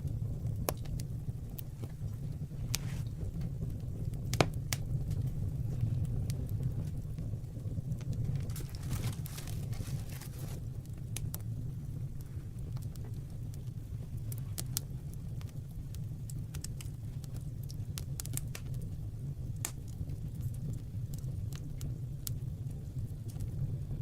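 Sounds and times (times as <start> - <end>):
fire crackling and popping: 0.0 - 24.0
fire rumbling: 0.0 - 24.0.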